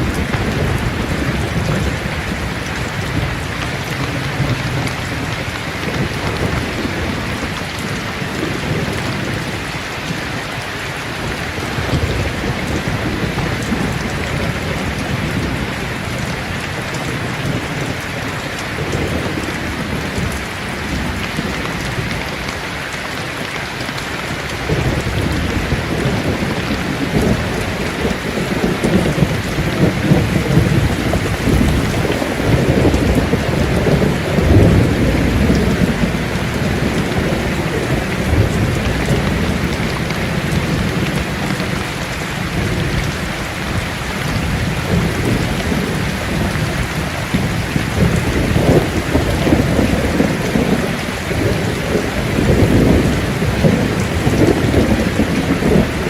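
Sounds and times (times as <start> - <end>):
rolling thunder: 0.0 - 10.3, 24.2 - 56.0
heavy rain: 0.0 - 56.0.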